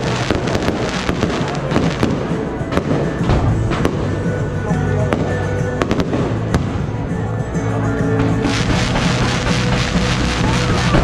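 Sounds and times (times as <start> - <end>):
firework bangs: 0.0 - 4.5, 8.3 - 11.0
fireworks crackling: 0.0 - 7.5, 8.2 - 11.0
loud music: 0.0 - 11.0.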